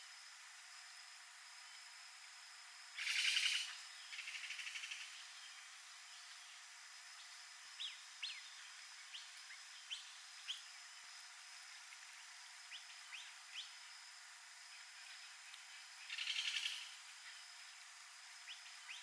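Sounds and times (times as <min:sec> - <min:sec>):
faint steady hiss: 0:00.0 - 0:19.0
small bird chirping: 0:03.0 - 0:06.6, 0:07.2 - 0:10.7, 0:12.2 - 0:13.8, 0:14.7 - 0:17.6, 0:18.4 - 0:19.0.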